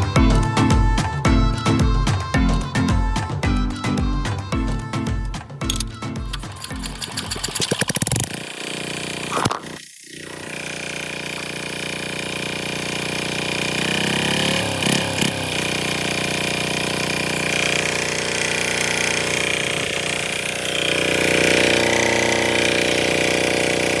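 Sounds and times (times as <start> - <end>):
small diesel engine running: 6.7 - 9.3, 10.2 - 24.0.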